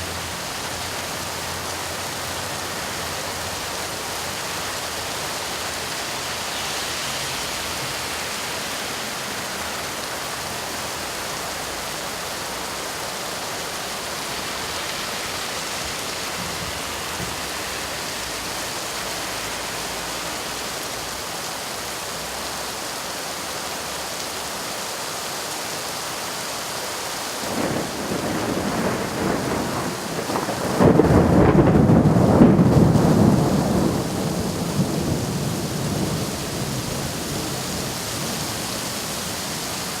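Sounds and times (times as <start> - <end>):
rain falling: 0.0 - 40.0
thunder rumbling: 27.4 - 38.9.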